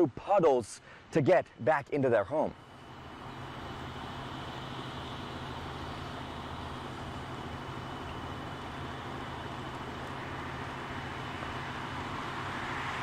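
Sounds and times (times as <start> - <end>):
outdoor noise hiss: 0.0 - 13.0
faint high whine: 2.4 - 13.0
idling engine hum: 2.5 - 13.0.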